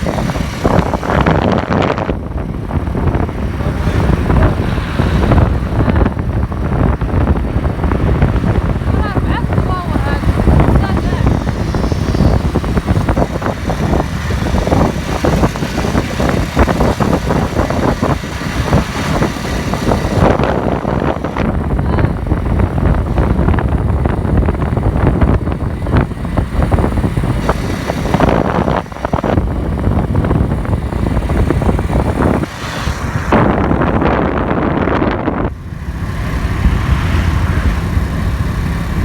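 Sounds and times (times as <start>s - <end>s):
car rumbling: 0.0s - 39.0s.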